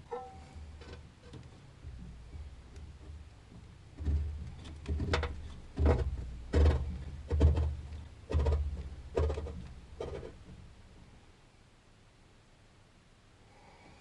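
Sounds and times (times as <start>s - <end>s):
dull knocks: 1.9s - 10.4s.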